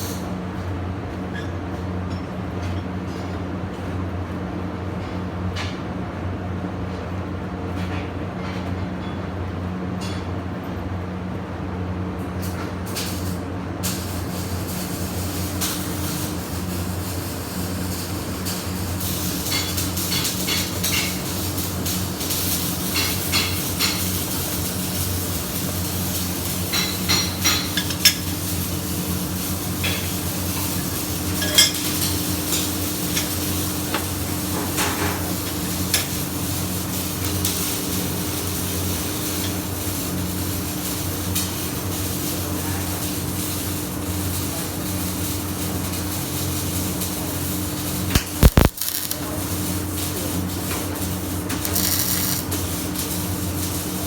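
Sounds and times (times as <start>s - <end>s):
welding machine hum: 12.9s - 54.0s
welding arc crackling: 14.0s - 34.6s, 35.2s - 42.4s, 43.0s - 54.0s.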